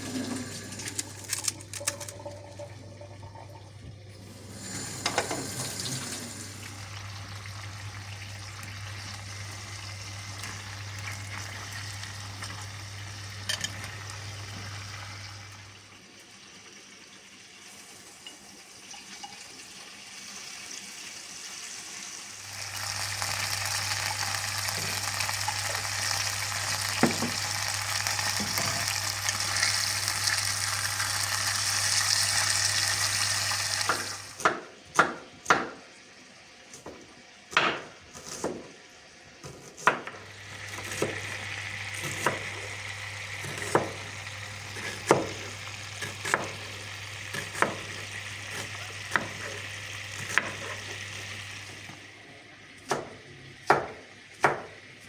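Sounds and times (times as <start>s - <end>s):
food sizzling in hot oil: 4.2s - 34.4s, 40.2s - 52.0s.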